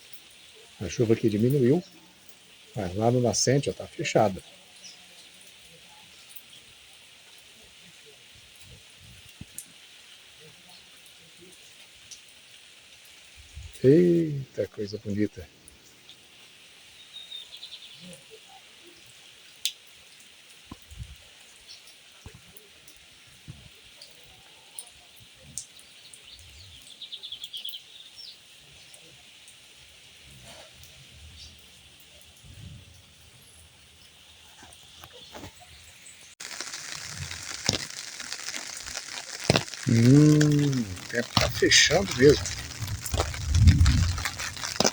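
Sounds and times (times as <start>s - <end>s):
raindrops ticking: 0.0s - 6.6s, 9.2s - 16.2s, 36.4s - 44.9s
light rain falling: 0.0s - 44.9s.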